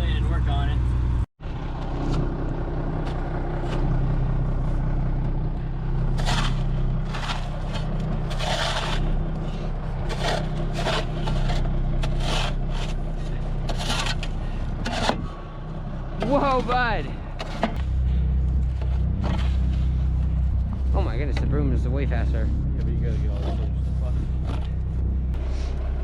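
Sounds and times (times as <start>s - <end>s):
engine idling: 0.0s - 26.0s
snow scraped off truck bed: 6.1s - 15.4s.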